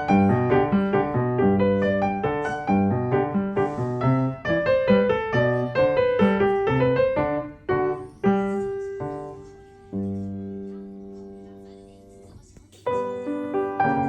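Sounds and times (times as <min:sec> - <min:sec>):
piano music: 0:00.0 - 0:11.5, 0:12.8 - 0:14.0.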